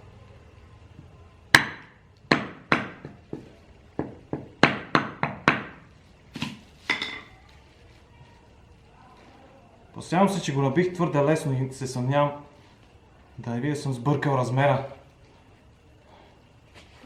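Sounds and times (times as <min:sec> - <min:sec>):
hammer tapping on metal: 0:01.6 - 0:05.8.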